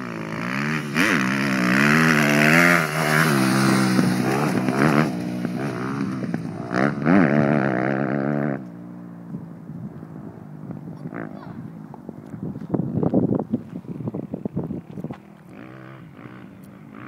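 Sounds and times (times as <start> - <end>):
dirt bike engine revving: 0.0 - 8.7, 10.5 - 11.6, 13.9 - 17.0.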